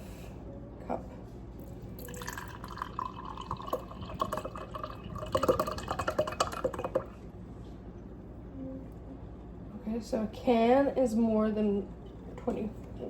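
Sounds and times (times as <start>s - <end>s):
juice pouring into cup: 1.6s - 7.2s.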